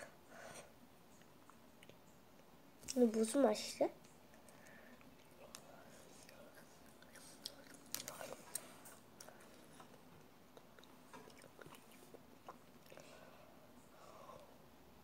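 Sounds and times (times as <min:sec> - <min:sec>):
wet chewing clicks and smacks: 0:06.5 - 0:13.0.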